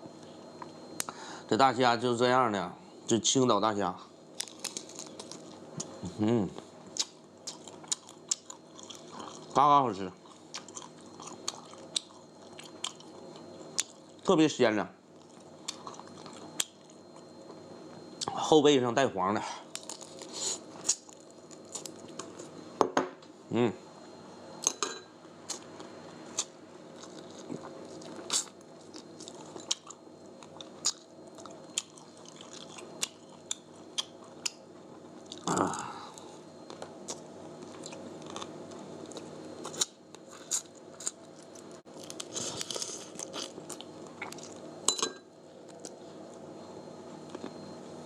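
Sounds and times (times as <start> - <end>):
person chewing and crunching: 4.4 - 6.0, 6.9 - 9.6, 10.2 - 14.2, 15.2 - 17.2, 19.8 - 22.5, 25.5 - 34.6, 35.2 - 44.7.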